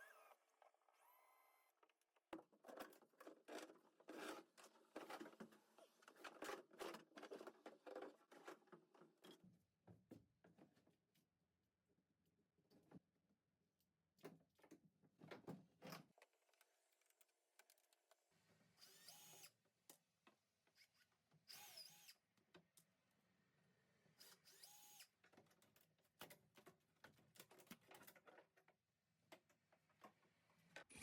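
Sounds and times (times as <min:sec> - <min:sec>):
power drill whining: 0:00.0 - 0:00.4, 0:18.8 - 0:19.5, 0:21.5 - 0:22.1, 0:24.2 - 0:25.0.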